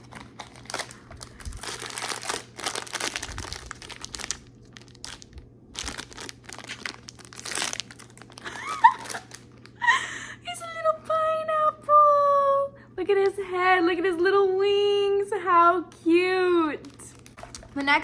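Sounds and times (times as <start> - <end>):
packaging crinkling and tearing: 0.0 - 9.8, 16.8 - 18.0.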